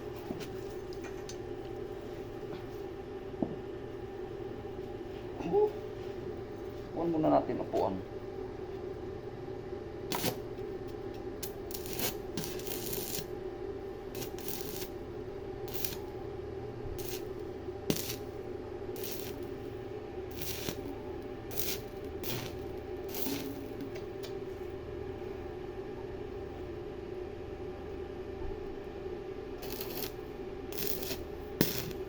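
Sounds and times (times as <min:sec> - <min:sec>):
steady hum: 0:00.0 - 0:32.0
welding arc crackling: 0:10.1 - 0:10.6, 0:11.4 - 0:13.4, 0:14.0 - 0:15.1, 0:15.7 - 0:16.2, 0:17.0 - 0:24.3, 0:29.6 - 0:32.0.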